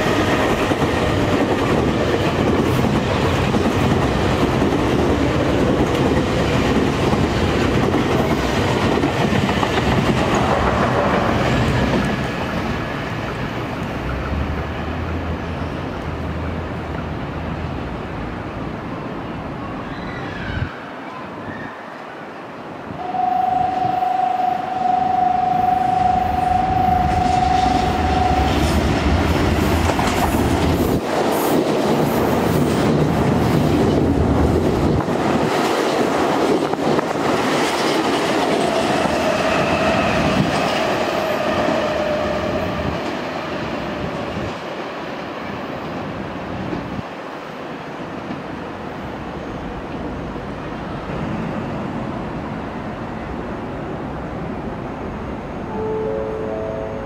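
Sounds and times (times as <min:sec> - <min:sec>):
train horn: 0:22.9 - 0:28.8, 0:38.9 - 0:43.1, 0:55.7 - 0:57.0.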